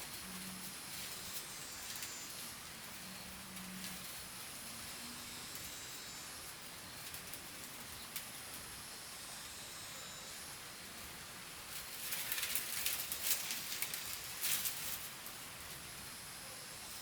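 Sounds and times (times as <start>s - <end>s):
faint hiss: 0.0s - 17.0s
rustling and scraping: 11.7s - 15.9s.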